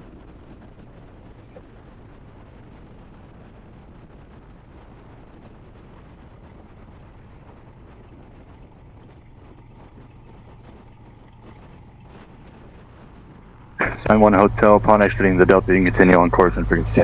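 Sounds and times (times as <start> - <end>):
airplane engine droning: 0.0 - 17.0.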